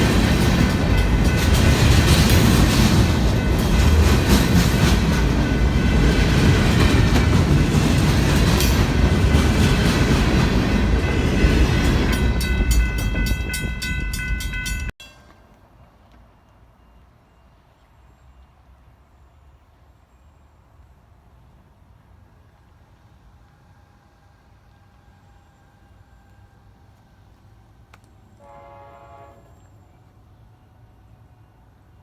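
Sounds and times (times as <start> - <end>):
freight train wheels rumbling: 0.0 - 15.4
wheels clicking over rail joints: 0.0 - 16.2.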